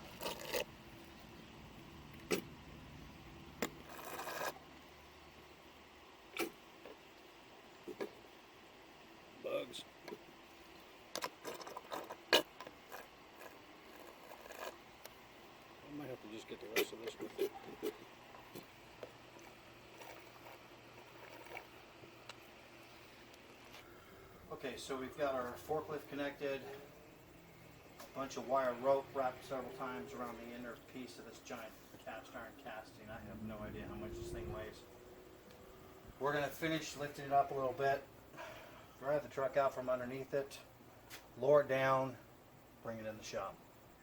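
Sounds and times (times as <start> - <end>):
low steady hum: 0.0 - 44.0
scraping rustle: 3.8 - 4.6, 11.2 - 14.8.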